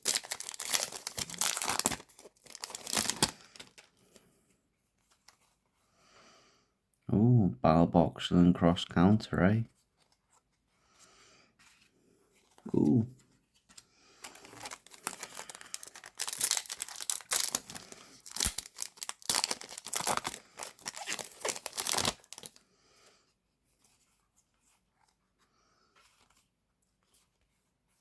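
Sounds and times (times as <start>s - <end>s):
foil wrapper tearing and crinkling: 0.0s - 3.9s, 14.2s - 22.6s.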